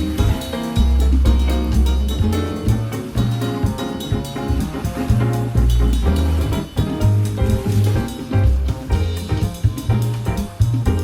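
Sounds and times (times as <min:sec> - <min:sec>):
deep bass line: 0:00.0 - 0:11.0
drum kit beat: 0:00.0 - 0:11.0
jazz music: 0:00.0 - 0:11.0.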